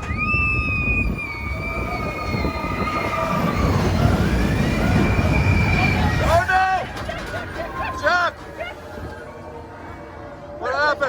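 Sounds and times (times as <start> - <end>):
roller coaster rumbling on track: 0.0 - 11.0
riders screaming: 0.4 - 8.7.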